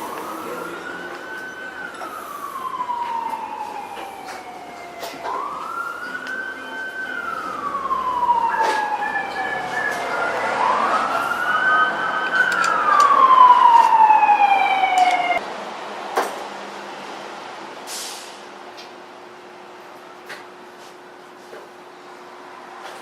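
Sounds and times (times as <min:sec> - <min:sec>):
emergency siren wailing: 0:00.0 - 0:15.4.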